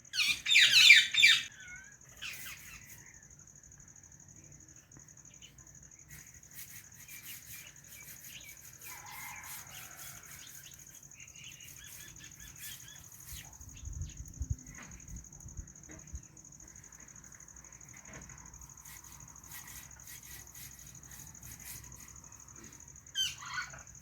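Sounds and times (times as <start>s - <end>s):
parrot chirping: 0.1s - 2.6s.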